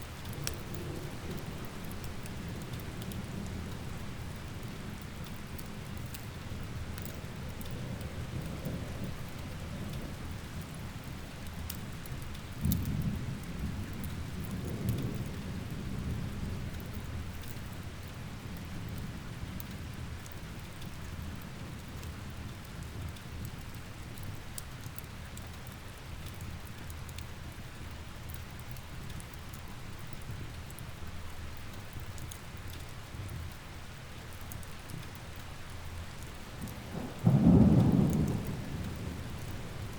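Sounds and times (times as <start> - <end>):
steady rain: 0.0 - 39.9
wood fire crackling: 0.1 - 8.4
thunder rumbling low: 36.6 - 39.9.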